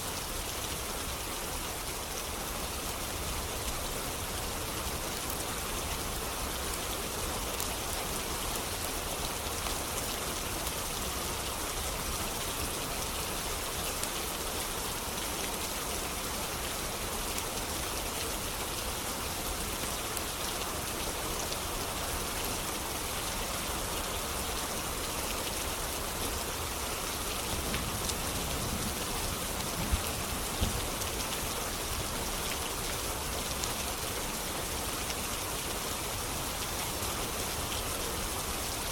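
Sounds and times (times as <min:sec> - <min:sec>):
rain pattering: 0:00.1 - 0:38.9.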